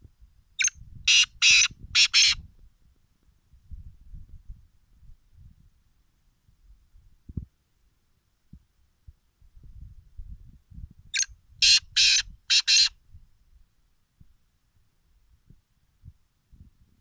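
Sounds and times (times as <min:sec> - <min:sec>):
partridge harsh call: 0:00.6 - 0:02.4.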